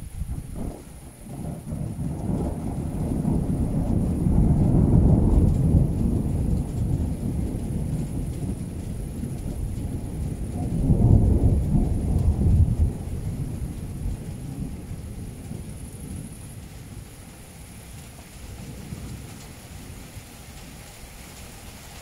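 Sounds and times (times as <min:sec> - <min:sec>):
thunder rumbling: 0:00.0 - 0:21.8.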